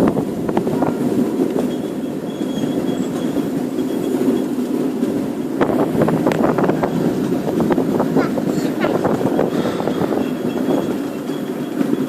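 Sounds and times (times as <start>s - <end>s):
miniature train rumbling on track: 0.0s - 12.0s
thin squeal: 1.6s - 4.6s, 9.2s - 12.0s.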